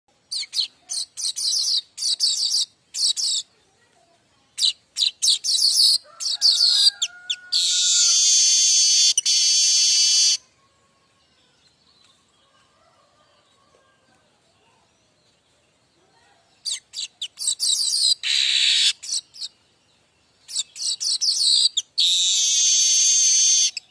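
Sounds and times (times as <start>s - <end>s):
bird chirping and buzzing: 4.5s - 12.8s, 16.6s - 23.9s.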